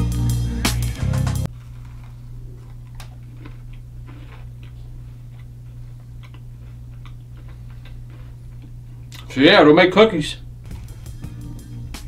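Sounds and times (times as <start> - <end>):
music: 0.0 - 1.5, 10.6 - 12.0
steady low hum: 0.0 - 12.0
man chewing cookie: 1.5 - 9.3.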